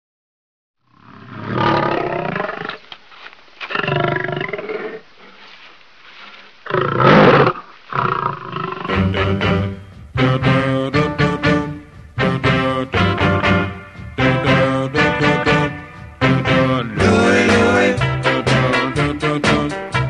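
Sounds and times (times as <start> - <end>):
big cat roaring: 0.9 - 2.8, 3.7 - 5.0, 6.7 - 8.9.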